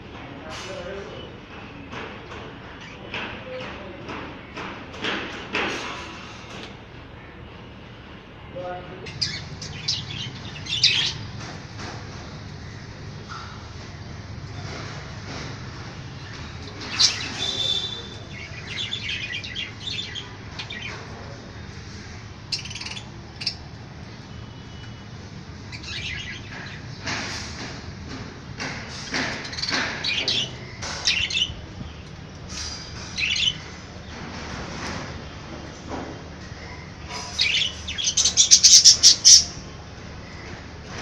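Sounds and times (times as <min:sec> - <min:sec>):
budgerigars chirping: 0:09.1 - 0:11.2, 0:37.3 - 0:39.6.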